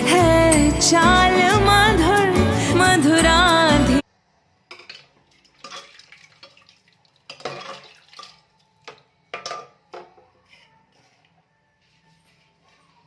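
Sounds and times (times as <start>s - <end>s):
utensils and dishes clattering: 7.3s - 11.2s.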